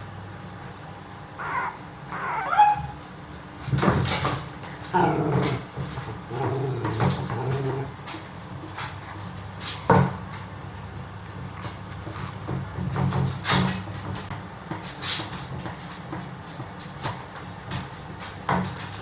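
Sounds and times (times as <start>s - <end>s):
puppies whimpering and squeaking: 1.3s - 3.1s.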